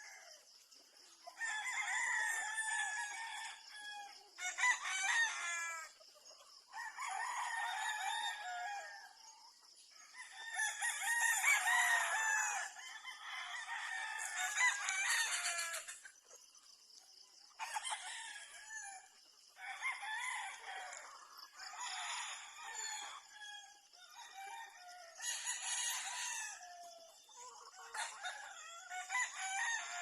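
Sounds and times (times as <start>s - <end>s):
roosters crowing: 1.3s - 6.0s, 6.7s - 9.3s, 10.0s - 16.0s, 17.6s - 30.0s
chickens clucking: 14.1s - 19.9s, 24.9s - 30.0s.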